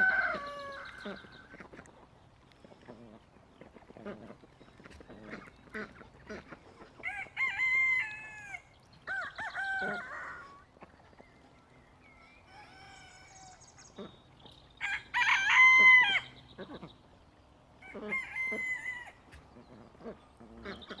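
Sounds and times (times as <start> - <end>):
rooster crowing: 0.0 - 0.9, 7.0 - 10.5, 12.5 - 13.6, 14.8 - 16.3, 17.8 - 19.2.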